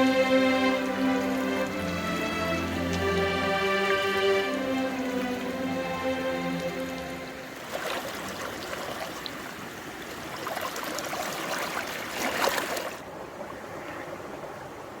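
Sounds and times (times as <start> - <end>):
water rushing and splashing: 0.0 - 15.0.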